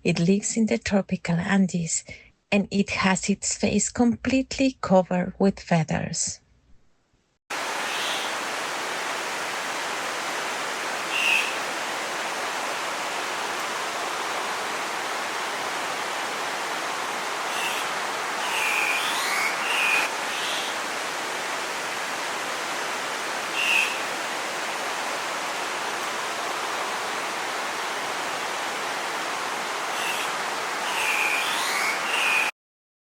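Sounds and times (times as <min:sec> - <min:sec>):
stream rushing: 0:07.5 - 0:32.5
bird squawks: 0:11.1 - 0:11.6, 0:17.5 - 0:20.8, 0:23.5 - 0:24.1, 0:30.0 - 0:30.3, 0:30.9 - 0:32.5.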